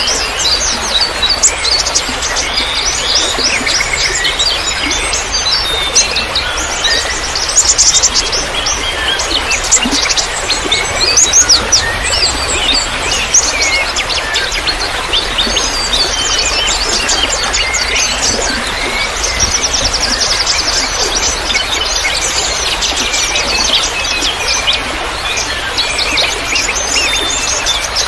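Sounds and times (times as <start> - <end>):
small birds chirping: 0.0 - 28.0
trickle of running water: 0.0 - 28.0.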